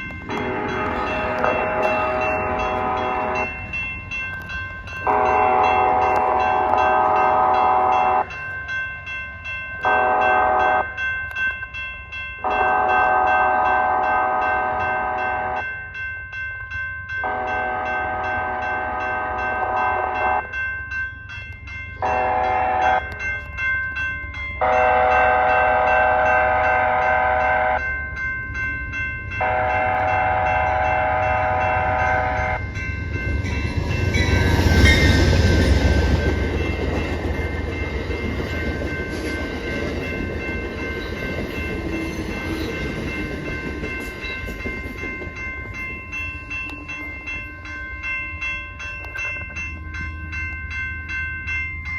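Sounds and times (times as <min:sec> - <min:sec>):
train passing rumble: 0:00.0 - 0:51.9
train horn blasts: 0:00.3 - 0:03.5, 0:05.1 - 0:08.3, 0:09.8 - 0:10.9, 0:12.4 - 0:15.7, 0:17.2 - 0:20.5, 0:22.0 - 0:23.2, 0:24.6 - 0:27.8, 0:29.4 - 0:32.6.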